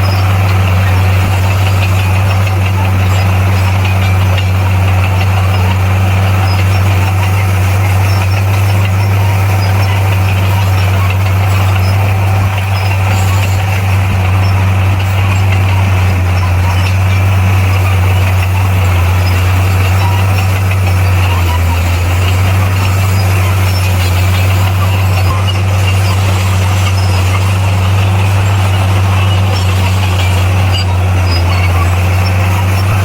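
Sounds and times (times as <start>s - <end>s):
diesel engine droning: 0.0s - 33.0s.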